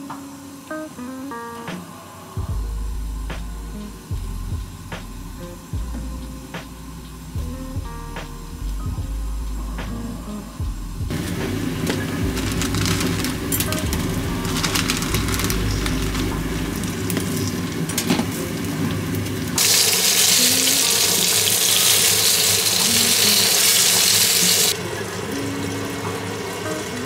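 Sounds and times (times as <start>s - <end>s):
soft kitchen noises: 11.1s - 27.0s
chicken sizzling in hot oil: 18.7s - 27.0s.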